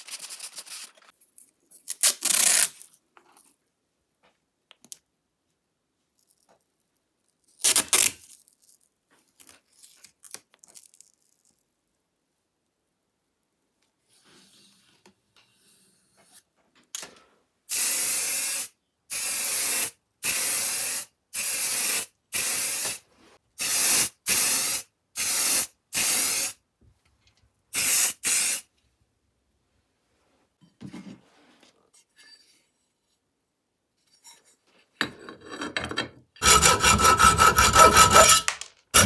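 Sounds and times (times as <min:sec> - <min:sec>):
spray paint can hissing: 0:17.7 - 0:23.0, 0:23.6 - 0:26.5, 0:27.8 - 0:28.6.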